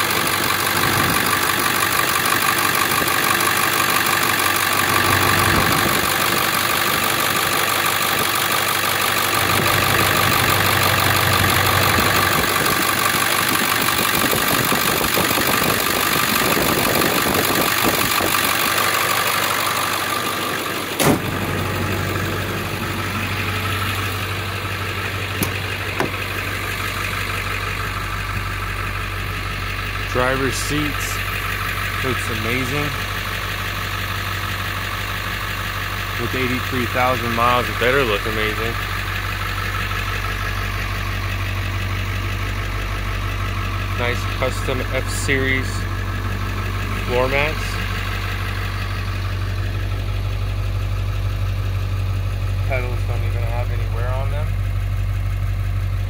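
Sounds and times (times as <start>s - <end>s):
diesel engine idling: 0.0s - 56.0s
thump: 21.0s - 21.4s, 25.4s - 26.2s.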